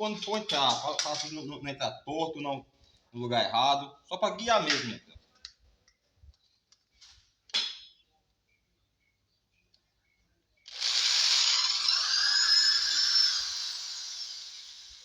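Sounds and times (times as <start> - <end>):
electric drill drilling wood: 10.7 - 15.0.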